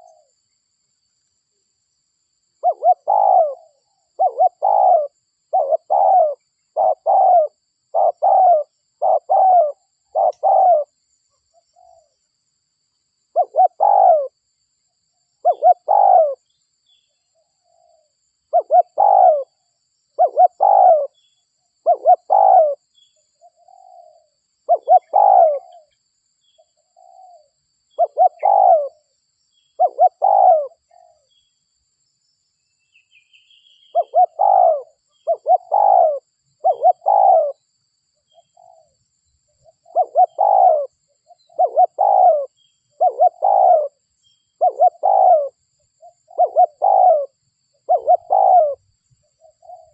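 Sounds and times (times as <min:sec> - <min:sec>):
dove cooing: 0:00.0 - 0:00.3, 0:02.6 - 0:11.0, 0:13.3 - 0:14.4, 0:15.4 - 0:16.5, 0:17.6 - 0:19.6, 0:20.2 - 0:21.2, 0:21.8 - 0:22.8, 0:23.4 - 0:26.0, 0:26.9 - 0:29.1, 0:29.8 - 0:31.3, 0:33.8 - 0:37.6, 0:38.3 - 0:39.0, 0:39.6 - 0:44.0, 0:44.6 - 0:49.9
faint bird chirp: 0:00.0 - 0:49.9.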